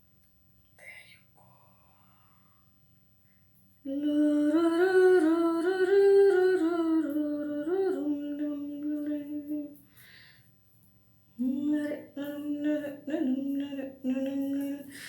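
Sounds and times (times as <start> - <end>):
woman humming a tune: 3.8 - 9.8, 11.4 - 15.0.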